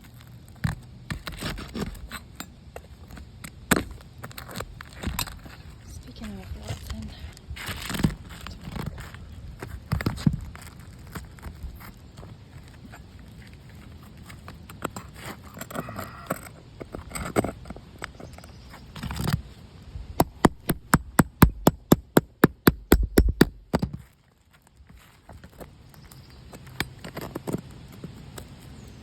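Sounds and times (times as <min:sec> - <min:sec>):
pry bar scraping roof shingles: 0:00.0 - 0:19.6, 0:20.2 - 0:29.0
sharp metal taps: 0:20.2 - 0:23.9.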